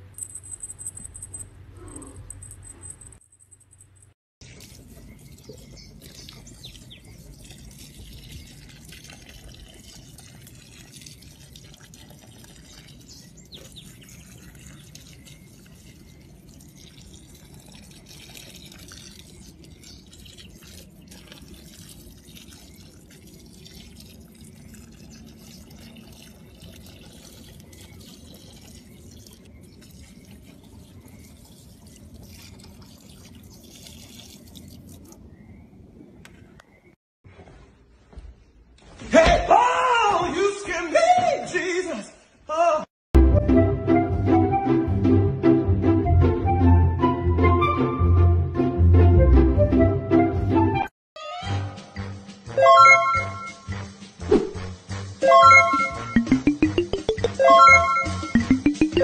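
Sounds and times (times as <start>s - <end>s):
water pouring onto soil: 4.4s - 35.2s.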